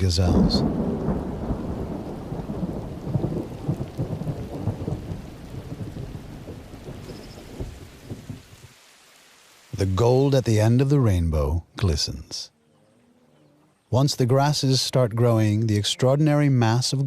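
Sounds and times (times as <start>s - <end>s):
thunder rumbling and crackling: 0.0s - 8.6s
steady rain: 0.0s - 12.6s, 13.7s - 17.0s.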